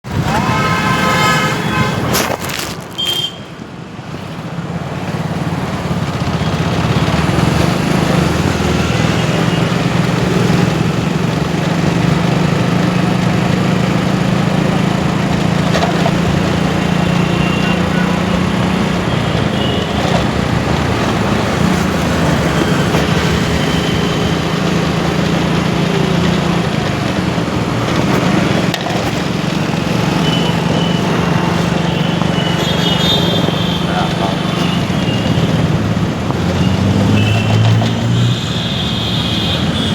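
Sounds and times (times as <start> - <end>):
wind and road noise: 0.0 - 39.9
car horn toots: 0.1 - 2.2, 2.9 - 3.5, 16.3 - 20.3, 30.0 - 35.8, 36.5 - 39.9
motorcycle engine running: 5.1 - 38.1.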